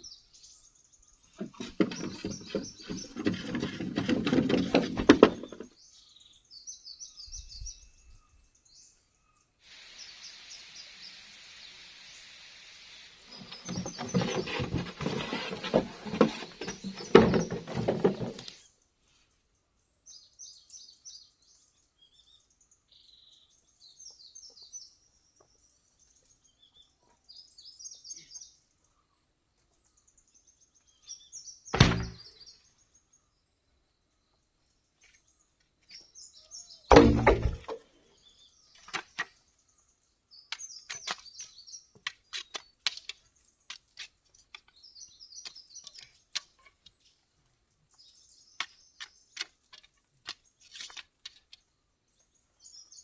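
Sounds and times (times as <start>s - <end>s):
small birds chirping: 0.0s - 53.0s
loud heavy thuds: 31.8s - 32.2s, 36.9s - 37.8s.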